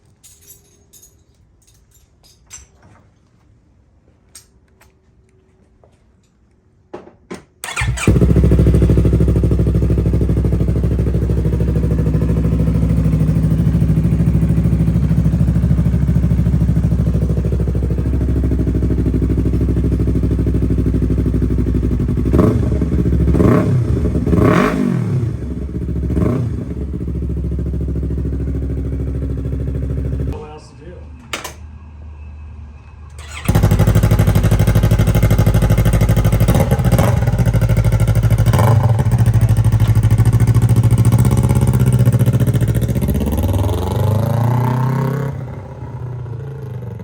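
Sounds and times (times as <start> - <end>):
motorcycle engine cranking: 7.5 - 11.7, 33.1 - 43.3
engine revving: 7.6 - 15.2, 21.9 - 30.3, 33.1 - 47.0
motorcycle engine burbling idle: 7.6 - 30.3, 33.2 - 44.4.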